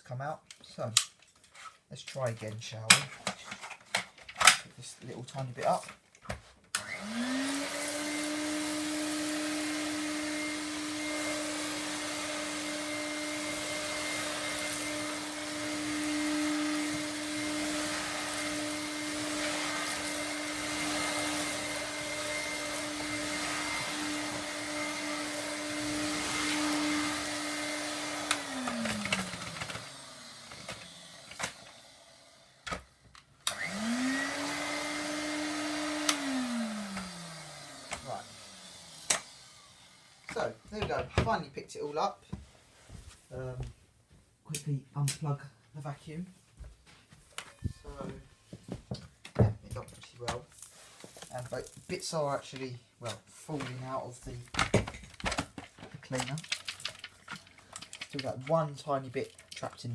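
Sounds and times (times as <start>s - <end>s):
vacuum cleaner winding down: 6.8s - 41.0s
vacuum cleaner motor running: 6.8s - 41.3s.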